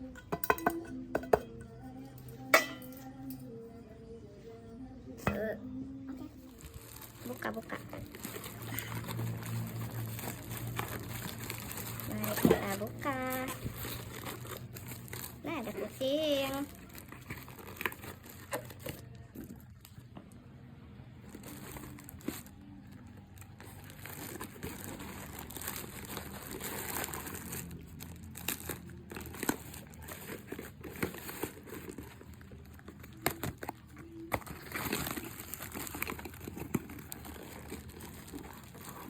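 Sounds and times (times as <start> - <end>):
packaging crinkling and rustling: 6.4 - 20.1, 21.2 - 39.0
packaging tearing: 6.6 - 19.1, 23.4 - 39.0.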